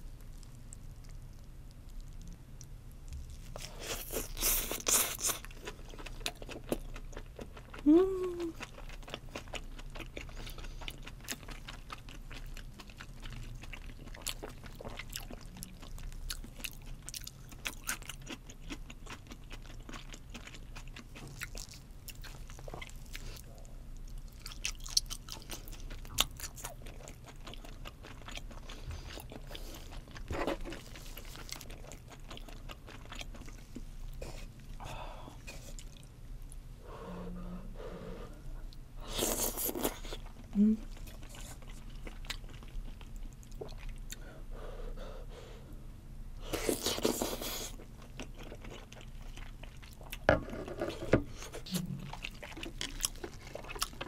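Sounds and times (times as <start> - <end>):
person humming: 7.8 - 8.6, 40.6 - 40.9.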